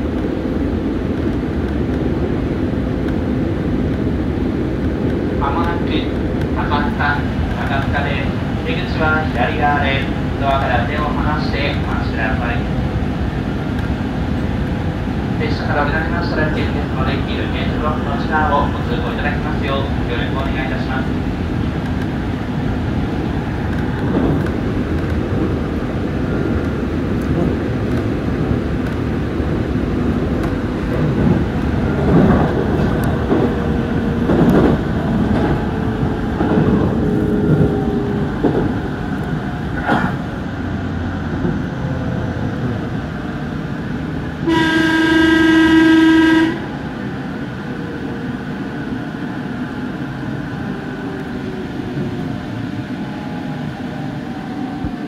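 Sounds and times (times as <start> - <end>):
train rumble: 0.0 - 55.0
loud train horn: 44.4 - 46.7.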